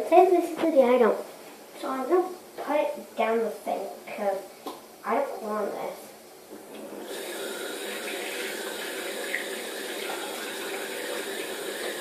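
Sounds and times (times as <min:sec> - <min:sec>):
water running into a sink: 0:06.8 - 0:12.0.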